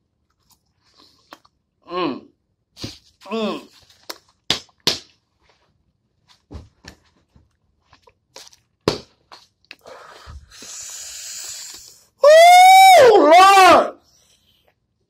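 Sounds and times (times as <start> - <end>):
wet chewing and crunching: 0.2 - 1.7.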